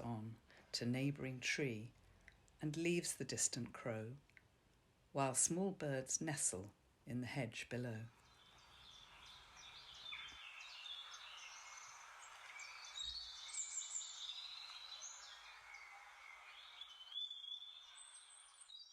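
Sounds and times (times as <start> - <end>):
songbirds chirping and singing: 8.2 - 18.9.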